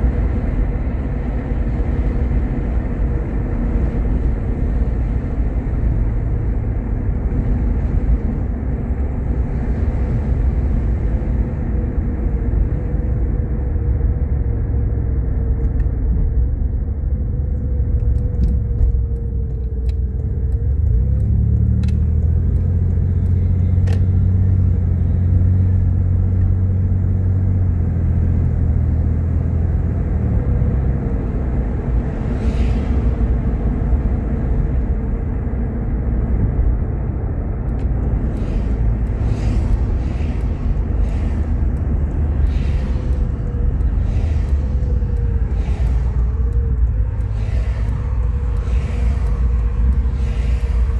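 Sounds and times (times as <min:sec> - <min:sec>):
car engine and road rumble: 0:00.0 - 0:50.9
light ticks: 0:17.5 - 0:24.6, 0:37.7 - 0:50.9.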